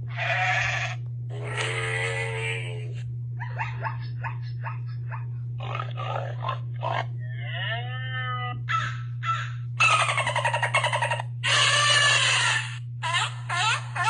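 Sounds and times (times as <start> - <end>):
steady low hum: 0.0 - 14.0
animal calls: 8.7 - 13.9.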